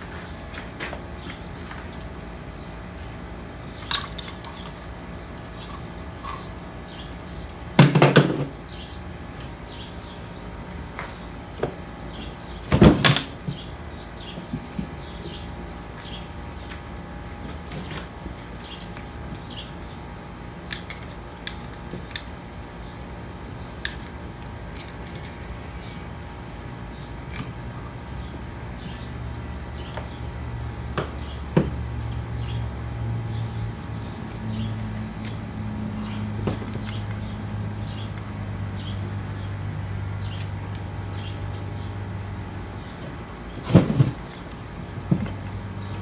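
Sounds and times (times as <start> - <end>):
steady low hum: 0.0 - 46.0
metal tools clicking and clinking: 3.8 - 6.6, 20.7 - 22.4, 23.8 - 26.1, 27.3 - 27.6.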